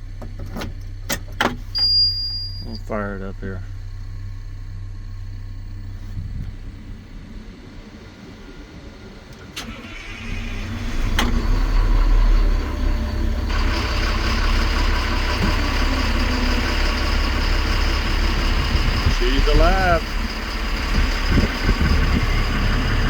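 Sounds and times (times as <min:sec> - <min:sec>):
diesel engine starting and idling: 0:00.0 - 0:23.0.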